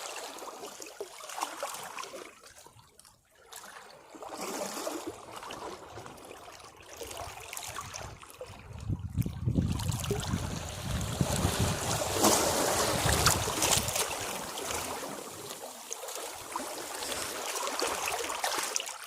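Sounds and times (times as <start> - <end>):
sea waves washing against rocks: 9.0 - 18.5.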